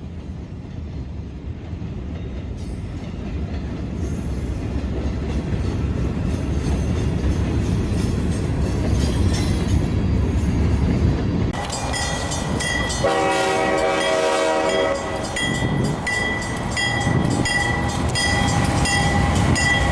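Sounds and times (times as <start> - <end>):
train rumbling and clattering: 0.0 - 19.9
locomotive horn: 11.6 - 15.5.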